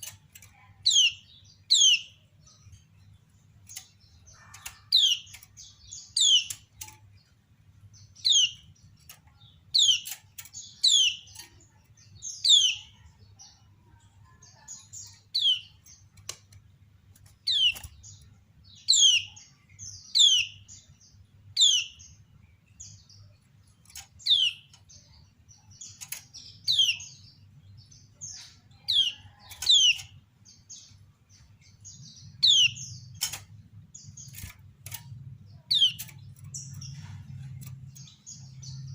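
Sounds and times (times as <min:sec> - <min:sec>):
bird sharp chirps: 0:03.7 - 0:07.0, 0:28.3 - 0:38.9.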